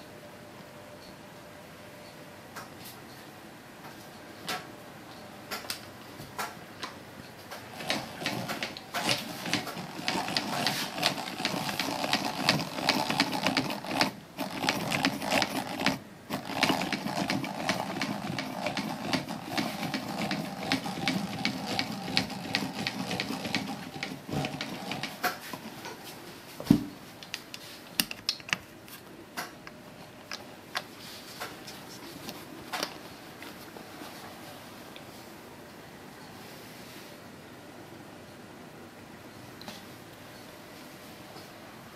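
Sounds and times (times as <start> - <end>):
sewing machine clicking: 7.6 - 25.4.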